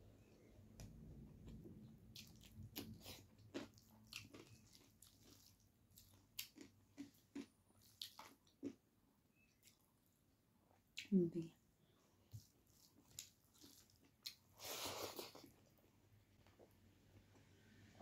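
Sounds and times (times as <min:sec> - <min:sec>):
mouth chewing food: 0:00.8 - 0:08.8, 0:12.3 - 0:15.8.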